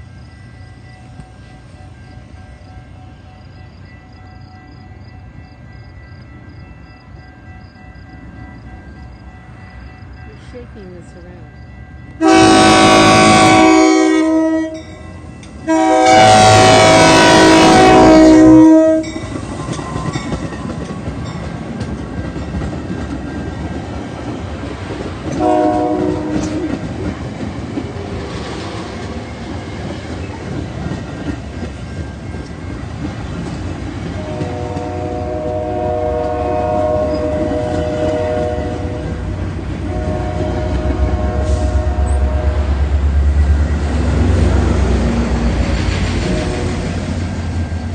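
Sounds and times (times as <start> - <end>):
train rumbling on rails: 0.0 - 47.9
train air horn: 12.2 - 14.9, 15.6 - 19.2, 25.3 - 26.8, 34.2 - 39.2, 39.8 - 42.9, 46.1 - 47.0.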